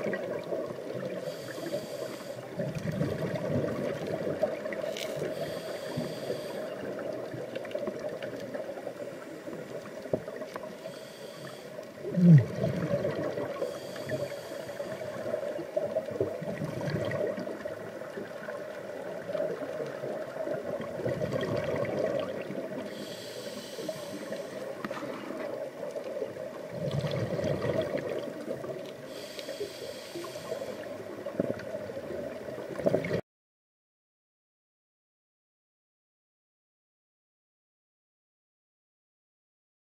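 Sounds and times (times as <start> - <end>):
steady water noise: 0.0 - 33.2.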